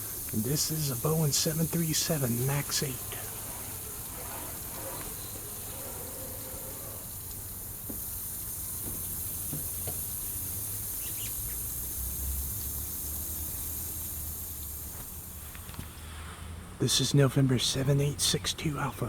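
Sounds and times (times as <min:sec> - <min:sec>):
distant jet airliner rumble: 0:00.0 - 0:07.9
high hiss: 0:00.0 - 0:19.0
faint bird chirps: 0:11.0 - 0:11.6.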